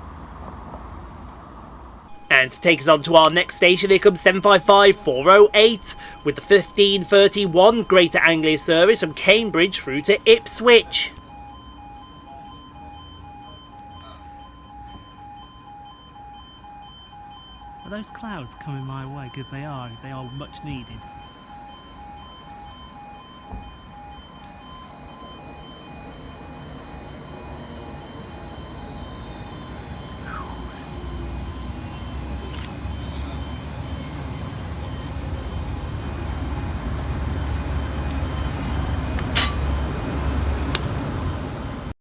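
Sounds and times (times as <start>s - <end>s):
diesel train running: 2.1s - 11.2s, 25.9s - 41.9s
repeated beeping: 2.1s - 11.2s, 30.3s - 40.0s
train high whine: 2.1s - 41.9s.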